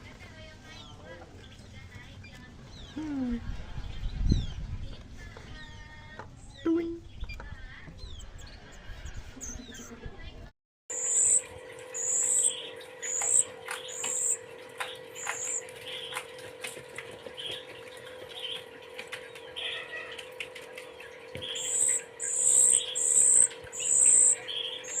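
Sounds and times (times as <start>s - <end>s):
chicks begging calls: 10.9s - 16.3s, 17.2s - 25.0s.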